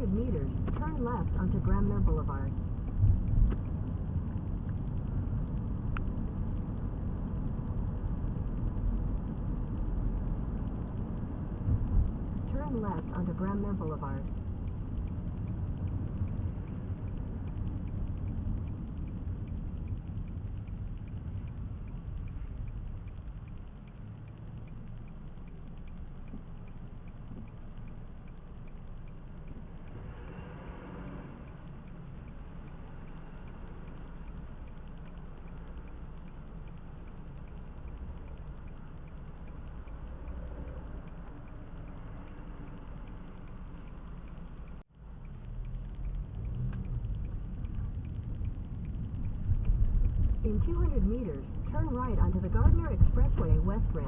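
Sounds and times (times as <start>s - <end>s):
car road and engine rumble: 0.0s - 54.0s
turn signal ticking: 0.0s - 54.0s
tyres hissing on wet road: 29.9s - 34.2s.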